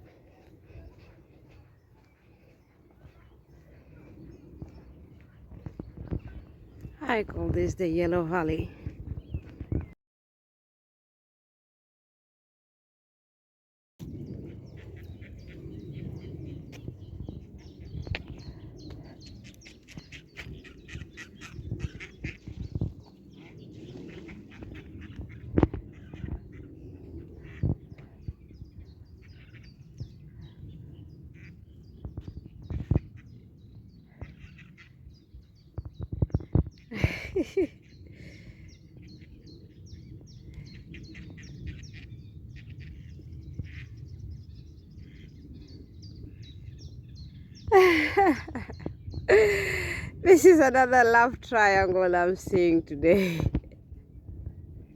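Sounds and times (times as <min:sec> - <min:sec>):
small birds chirping: 0:00.0 - 0:10.0, 0:14.0 - 0:53.6
low rumble: 0:14.0 - 0:34.0
steady low rumble: 0:14.0 - 0:54.9.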